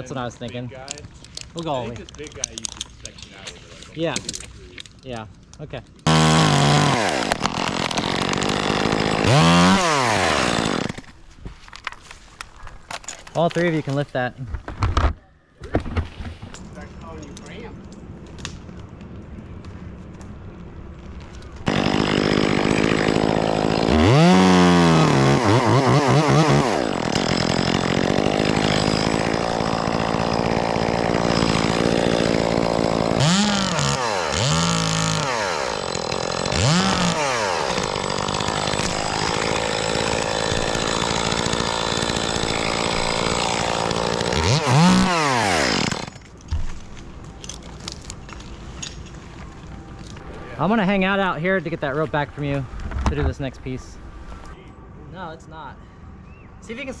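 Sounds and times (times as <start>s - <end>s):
chainsaw cutting wood: 6.0s - 11.2s, 21.7s - 46.2s.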